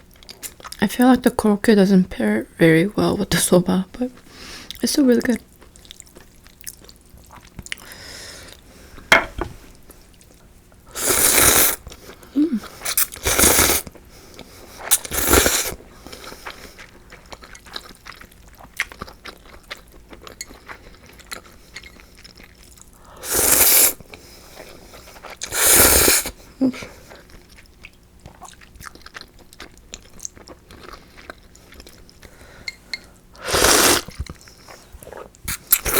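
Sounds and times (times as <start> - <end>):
quiet chewing: 5.5 - 8.6, 16.0 - 23.0, 26.8 - 33.2
slurping noodles: 11.0 - 11.8, 12.8 - 13.9, 14.8 - 15.8, 23.2 - 24.0, 25.4 - 26.3, 33.4 - 34.2.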